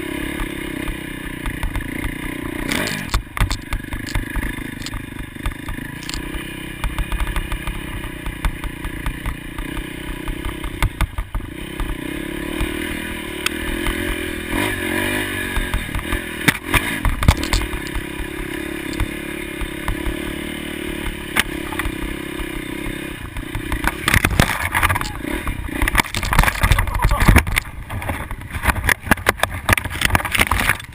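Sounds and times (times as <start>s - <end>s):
motorcycle engines revving: 0.0s - 30.9s.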